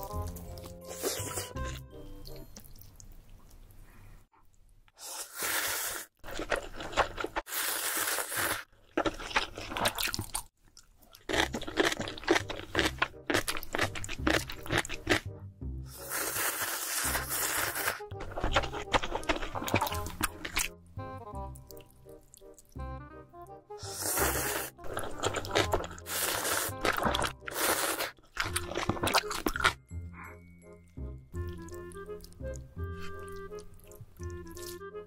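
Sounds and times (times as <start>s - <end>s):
crunching and chewing food: 6.2s - 15.3s, 16.0s - 20.7s, 23.9s - 29.9s, 31.4s - 34.9s
background music with low beat: 13.9s - 15.9s, 18.0s - 23.9s, 29.8s - 35.0s.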